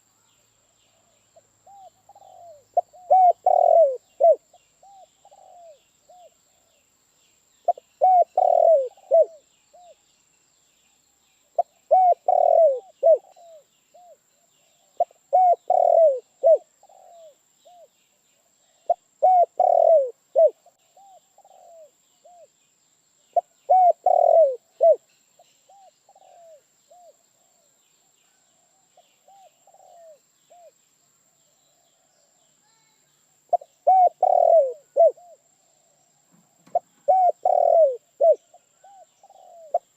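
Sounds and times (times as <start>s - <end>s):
dove cooing: 1.6s - 6.7s, 7.7s - 10.0s, 11.6s - 14.2s, 14.8s - 17.9s, 18.7s - 22.5s, 23.4s - 25.0s, 25.7s - 27.6s, 29.2s - 30.7s, 33.5s - 35.5s, 36.6s - 39.9s.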